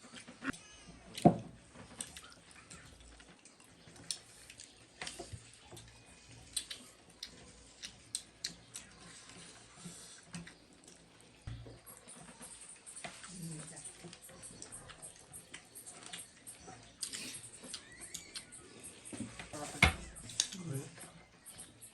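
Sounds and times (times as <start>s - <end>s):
chewing and mouth smacks: 1.8s - 19.3s.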